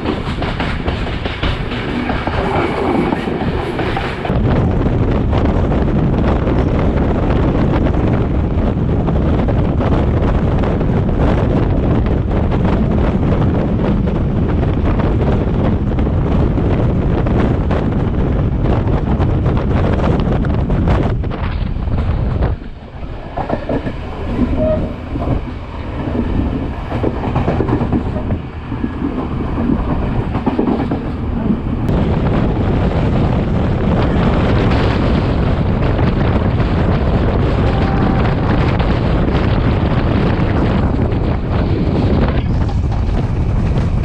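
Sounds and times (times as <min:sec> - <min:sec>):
train wheels rumbling on track: 0:00.0 - 0:44.0
wind rushing on microphone: 0:00.0 - 0:44.0.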